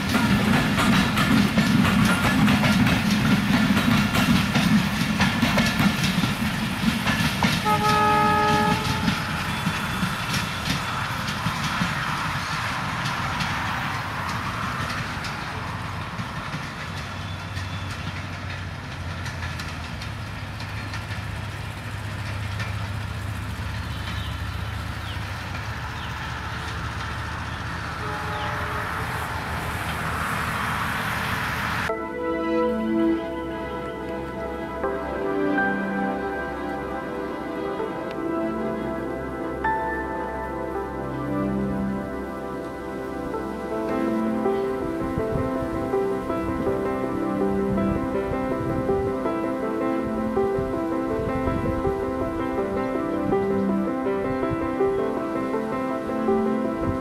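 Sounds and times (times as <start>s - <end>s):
train coaches rumbling and clattering: 0.0s - 57.0s
train horn blast: 7.6s - 10.0s, 27.9s - 29.9s.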